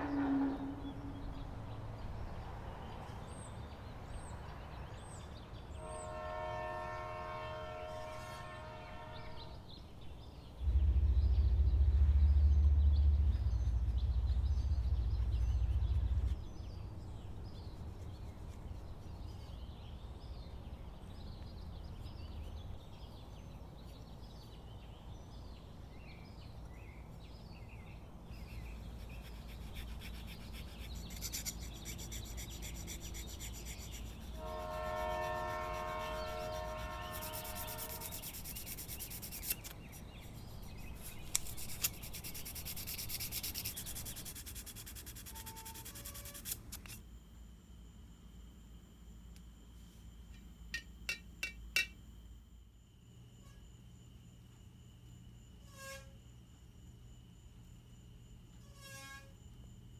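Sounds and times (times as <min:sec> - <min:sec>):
loud low rumble: 0:10.6 - 0:17.6
horn chord: 0:34.4 - 0:37.8.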